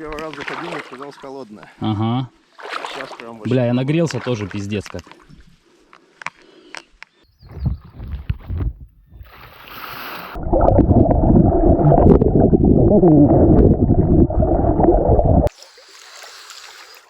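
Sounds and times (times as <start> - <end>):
water splash: 0.0 - 1.3, 2.6 - 4.6, 9.2 - 17.0
muffled underwater sloshing and gurgling: 9.2 - 15.5.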